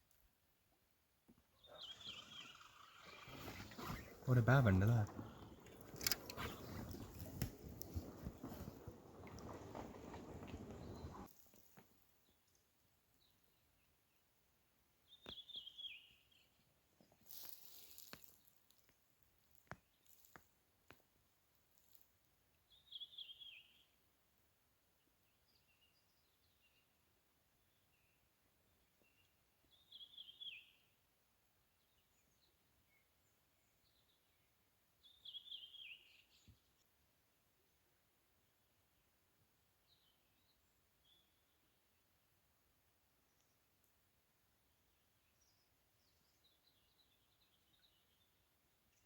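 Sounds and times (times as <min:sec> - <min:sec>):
songbird singing: 0:01.3 - 0:11.3, 0:15.0 - 0:17.1, 0:22.7 - 0:24.0, 0:27.6 - 0:31.0, 0:31.8 - 0:36.7
warbling bird call: 0:01.6 - 0:11.3
brief rustle: 0:01.8 - 0:11.9
faint clicks: 0:02.0 - 0:11.9.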